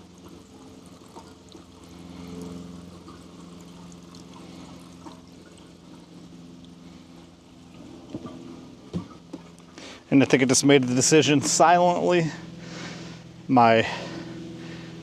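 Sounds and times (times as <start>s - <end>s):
small engine idling: 0.0s - 15.0s
liquid pouring: 2.8s - 8.3s.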